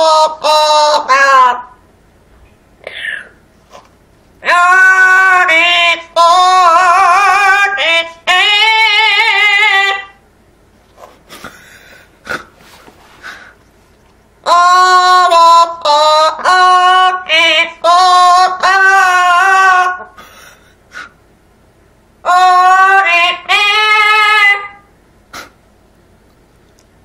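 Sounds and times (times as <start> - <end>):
parrot singing wavering notes: 22.2 - 24.9.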